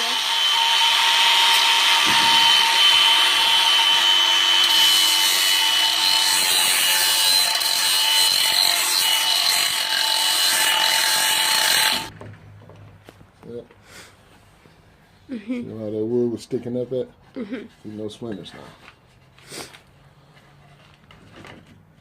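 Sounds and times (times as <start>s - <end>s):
power sander sanding wood: 0.0s - 12.1s.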